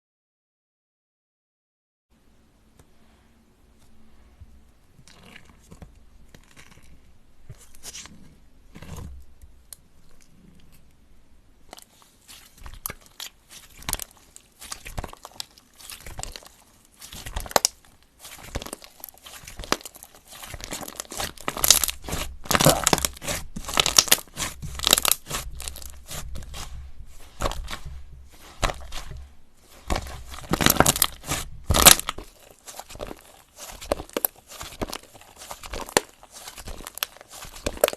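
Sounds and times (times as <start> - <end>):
slime crackling and popping: 11.7 - 37.9.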